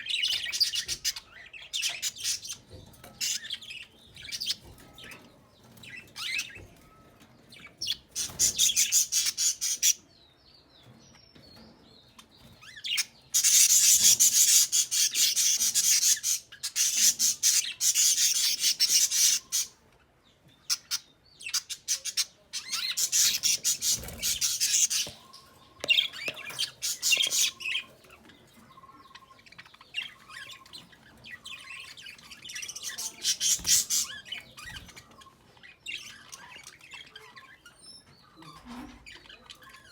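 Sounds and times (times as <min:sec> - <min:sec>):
bird chirping rapidly: 0:20.7 - 0:27.9.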